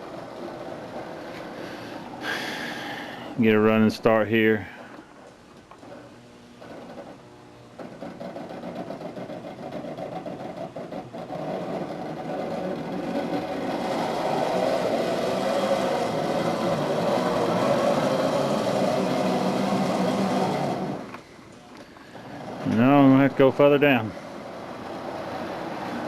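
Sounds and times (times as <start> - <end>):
wheel and rail noise: 0.0 - 26.0
model train motor whirring: 7.8 - 21.3.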